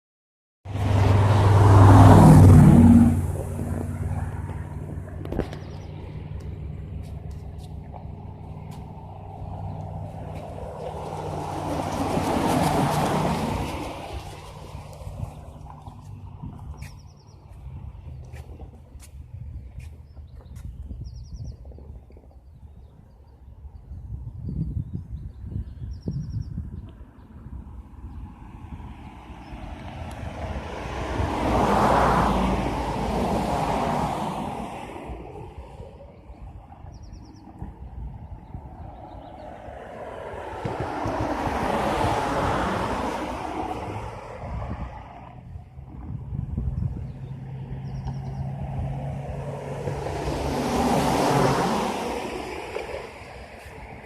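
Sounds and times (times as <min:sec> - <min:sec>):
car driving past: 0:00.7 - 0:18.9, 0:28.3 - 0:36.0, 0:38.8 - 0:54.0
road noise rushing: 0:00.7 - 0:22.4, 0:26.8 - 0:54.0
vehicle engine humming: 0:00.7 - 0:22.5, 0:26.9 - 0:54.0.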